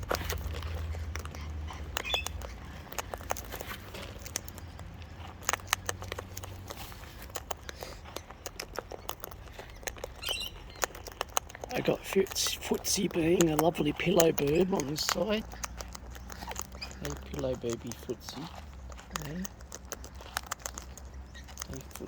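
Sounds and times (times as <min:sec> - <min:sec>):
bird beak clicking and tapping: 0:00.0 - 0:22.0.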